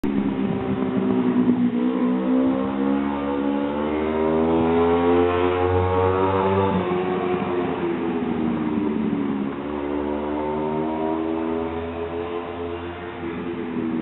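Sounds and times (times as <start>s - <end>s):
motorcycle engine rising in pitch: 0.0s - 14.0s.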